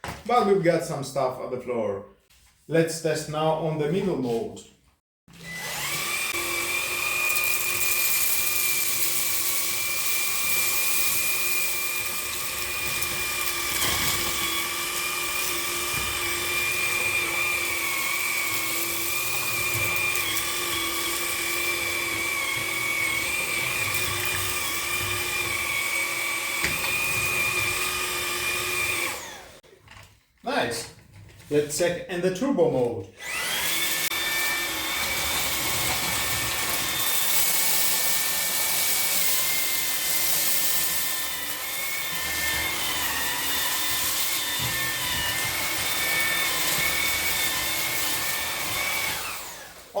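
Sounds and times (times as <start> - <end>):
vacuum cleaner motor whine: 5.3 - 29.6, 33.2 - 50.0.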